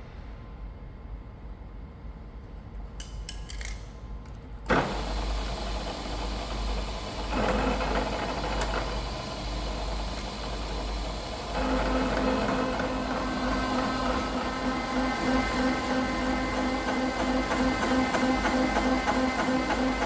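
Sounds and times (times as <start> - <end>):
machine tool humming: 4.7 - 20.0.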